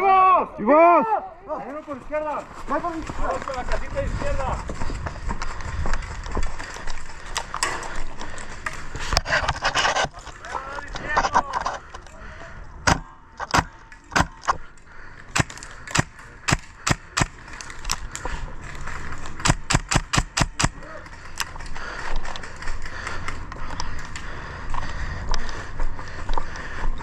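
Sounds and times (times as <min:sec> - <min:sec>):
rustling movement: 0:01.5 - 0:27.0
airsoft guns firing shots: 0:12.9 - 0:14.4, 0:15.3 - 0:17.4, 0:19.4 - 0:20.9.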